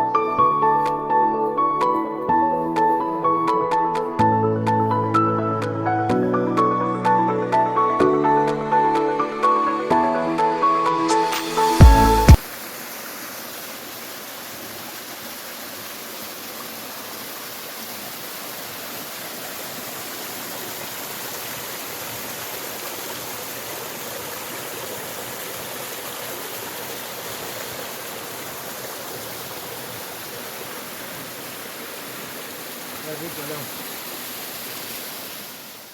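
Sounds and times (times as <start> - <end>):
stream water rushing over rocks: 12.3 - 35.9.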